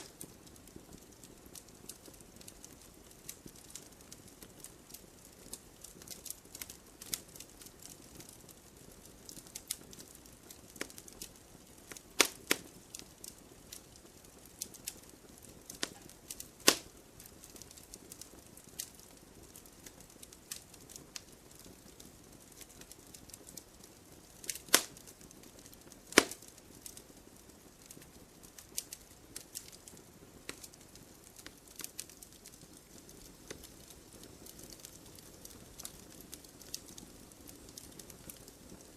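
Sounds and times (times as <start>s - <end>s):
fire hiss: 0.0s - 8.3s, 10.7s - 21.2s, 24.4s - 27.0s
wood fire crackling: 0.0s - 38.9s
loud sharp pops: 12.2s - 12.6s, 15.8s - 16.9s, 24.6s - 25.0s, 26.1s - 26.4s.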